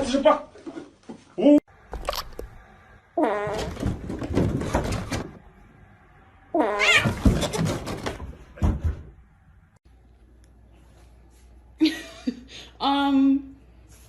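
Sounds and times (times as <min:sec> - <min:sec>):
rustling and knocks: 0:03.6 - 0:05.4
cat meowing: 0:06.6 - 0:07.2.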